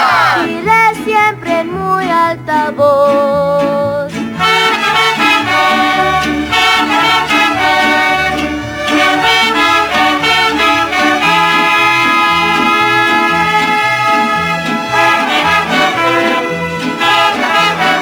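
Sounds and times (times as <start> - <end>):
trumpets playing melody: 0.0 - 0.5, 4.4 - 18.0
bass line: 0.0 - 18.0
mariachi band playing: 0.0 - 18.0.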